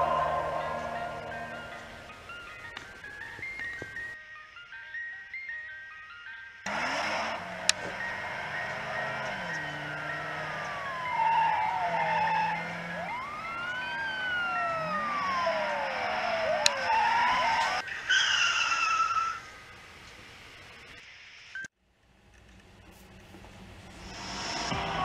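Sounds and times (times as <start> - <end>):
sirens wailing: 0.0 - 4.2, 6.7 - 19.7.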